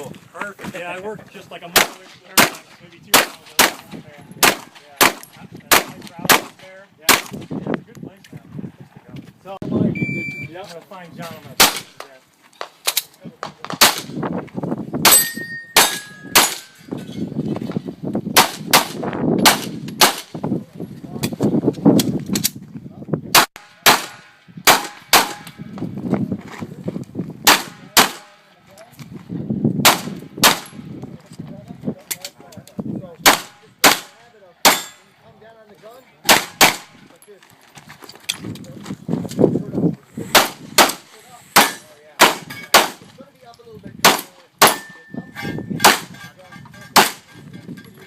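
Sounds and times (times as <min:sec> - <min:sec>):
pistol shots: 0:01.8 - 0:07.4, 0:11.6 - 0:11.9, 0:13.6 - 0:14.2, 0:15.1 - 0:16.8, 0:18.4 - 0:20.3, 0:23.3 - 0:25.6, 0:27.4 - 0:28.4, 0:29.8 - 0:30.8, 0:33.2 - 0:35.0, 0:36.2 - 0:37.0, 0:40.3 - 0:41.0, 0:41.6 - 0:43.0, 0:47.0 - 0:47.2
metallic ring of steel targets: 0:15.1 - 0:17.3, 0:34.7 - 0:35.1, 0:44.6 - 0:48.0.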